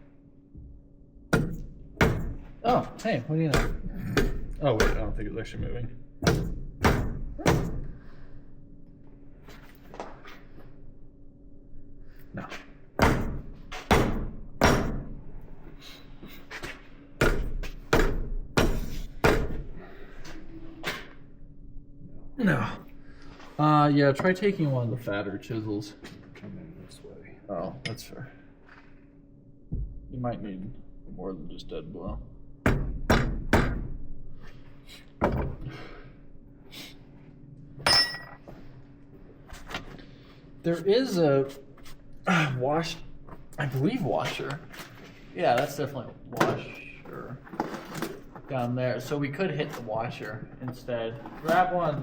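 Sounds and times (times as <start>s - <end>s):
hammer striking metal: 1.4s - 2.9s, 3.5s - 5.2s, 6.2s - 7.9s, 13.0s - 15.1s, 17.2s - 19.6s, 37.8s - 38.4s.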